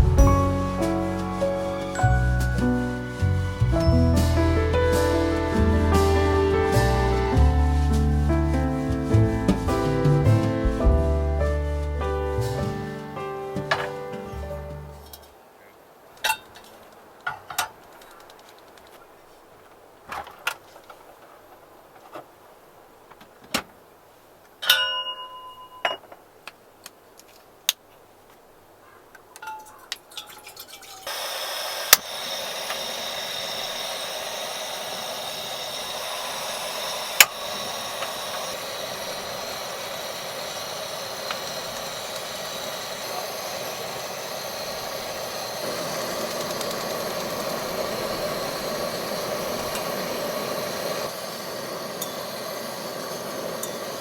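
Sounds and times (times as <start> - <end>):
steady hiss: 0.0 - 24.5, 31.0 - 54.0.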